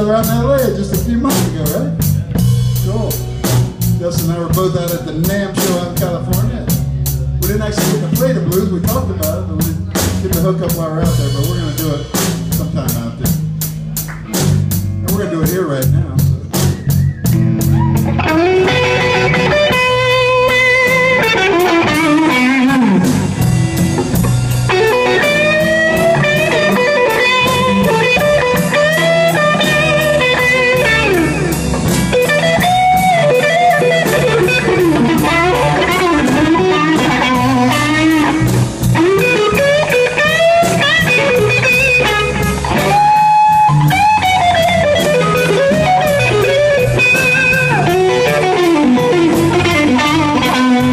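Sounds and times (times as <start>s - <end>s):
live blues band playing: 0.0s - 50.9s
electric guitar soloing: 16.0s - 50.9s.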